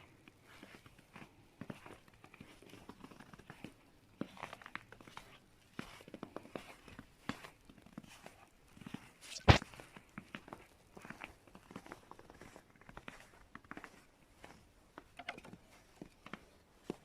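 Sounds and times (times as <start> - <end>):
footsteps crunching: 9.2 - 9.6.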